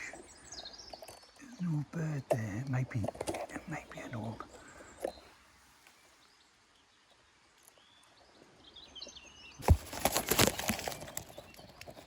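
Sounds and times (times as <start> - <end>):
faint bird chirps: 0.0 - 12.0
twigs and leaves crackling: 9.6 - 12.0.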